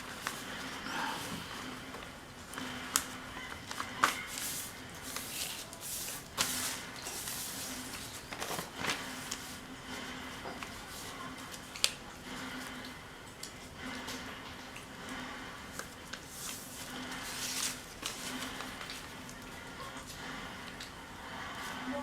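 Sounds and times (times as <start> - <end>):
paper rustling and crinkling: 2.9 - 9.6, 15.7 - 19.5.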